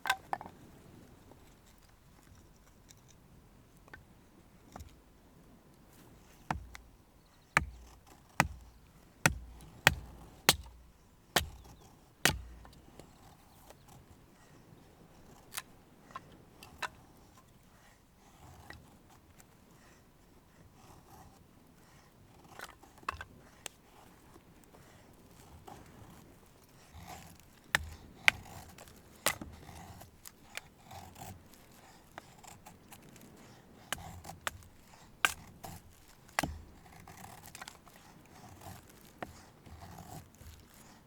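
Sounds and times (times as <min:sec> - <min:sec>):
hammer striking tent pegs: 0:06.5 - 0:06.9, 0:07.6 - 0:11.7, 0:12.3 - 0:12.8, 0:27.8 - 0:28.5.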